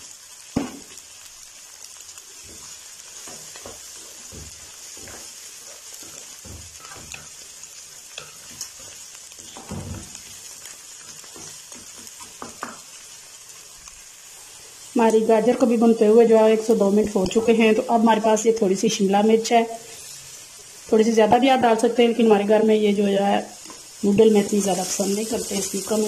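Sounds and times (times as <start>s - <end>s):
vegetables sizzling in oil: 0.0s - 26.0s
wooden spatula scraping a pan: 2.4s - 12.9s.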